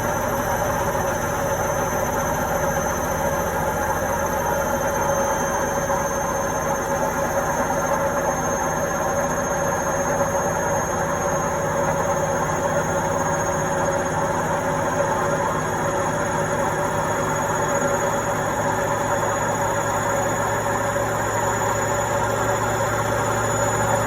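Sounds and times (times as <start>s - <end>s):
washing machine running: 0.0s - 24.0s.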